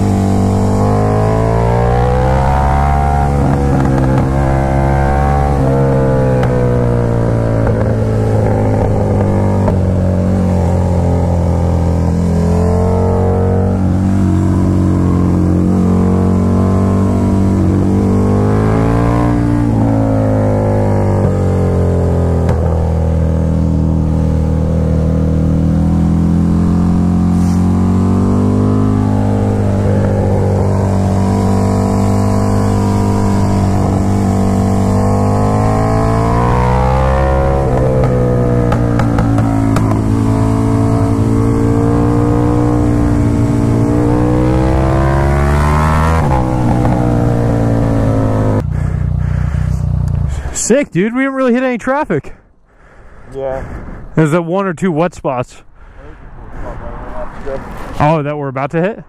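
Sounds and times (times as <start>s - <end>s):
motorcycle engine running: 0.0s - 50.6s
wind rushing over microphone: 53.3s - 54.2s.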